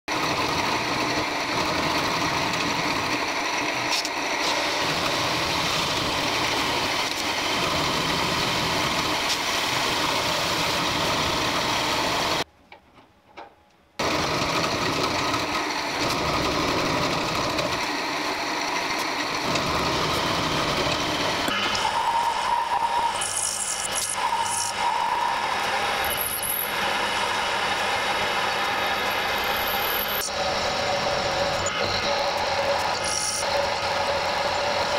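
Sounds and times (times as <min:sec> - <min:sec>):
milling machine cutting steel: 0:00.1 - 0:12.4, 0:14.0 - 0:34.9.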